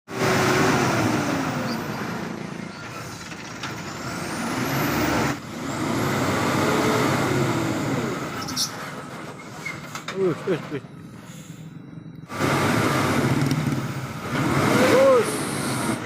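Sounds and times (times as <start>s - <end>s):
truck diesel engine roaring: 0.1s - 16.0s.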